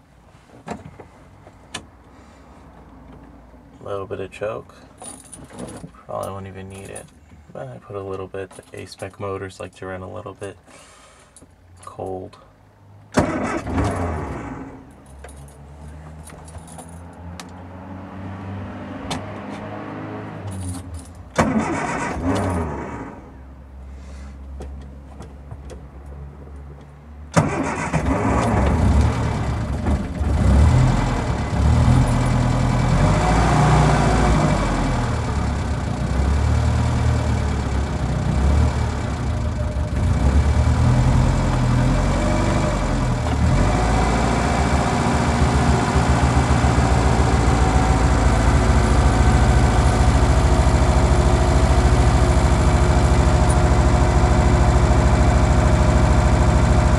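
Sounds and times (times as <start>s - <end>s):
car engine cranking and idling: 13.0s - 17.7s, 20.4s - 23.8s, 24.4s - 56.9s.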